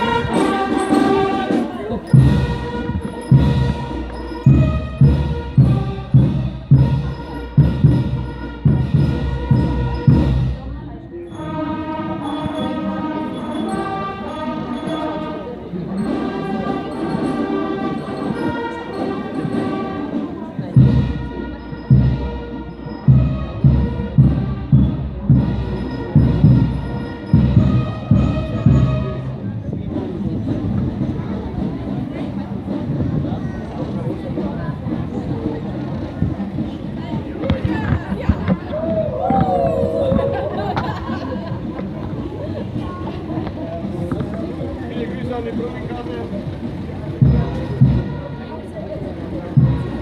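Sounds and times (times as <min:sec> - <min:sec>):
held brass notes: 0:00.0 - 0:37.2, 0:44.9 - 0:50.0
marching band playing: 0:00.0 - 0:50.0
bass drum beating: 0:02.0 - 0:10.8.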